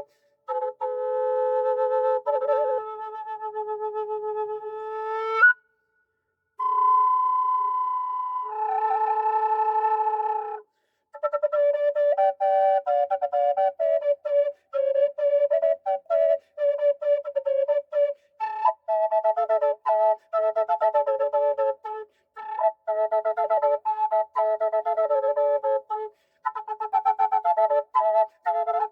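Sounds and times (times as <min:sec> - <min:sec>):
drone flute slow melody: 0:06.6 - 0:10.6
player breaths: 0:10.7 - 0:11.1.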